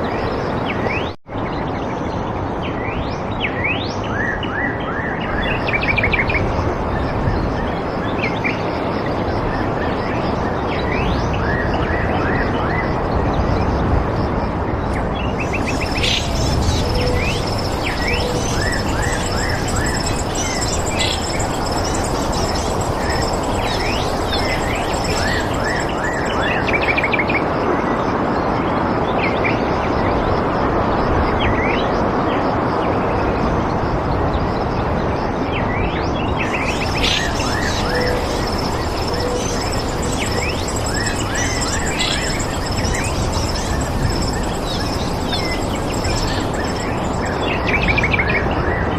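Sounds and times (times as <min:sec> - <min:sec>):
steady rushing background: 0:13.7 - 0:27.6, 0:36.3 - 0:48.6
small birds chirping: 0:15.0 - 0:27.2, 0:36.2 - 0:48.2
high thin pulsing trill: 0:15.4 - 0:27.1, 0:36.4 - 0:48.0.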